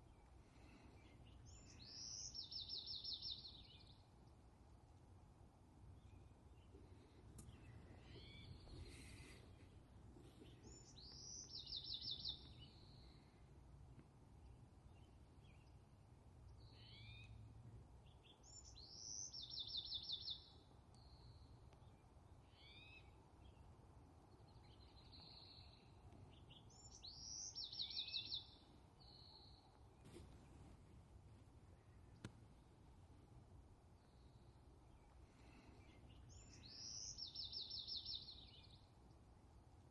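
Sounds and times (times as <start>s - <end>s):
faint bird calls: 0.0s - 4.1s, 6.1s - 13.6s, 16.6s - 17.4s, 22.4s - 23.2s, 34.0s - 38.9s
songbird singing with trill: 0.0s - 4.4s, 5.9s - 9.6s, 10.3s - 13.4s, 16.4s - 23.7s, 24.3s - 29.8s, 33.9s - 39.0s.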